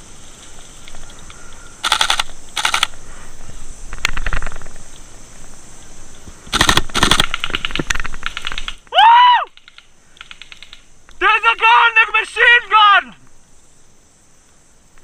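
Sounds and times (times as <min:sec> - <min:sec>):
airsoft rifles firing bursts: 0:01.8 - 0:02.9, 0:06.5 - 0:08.8.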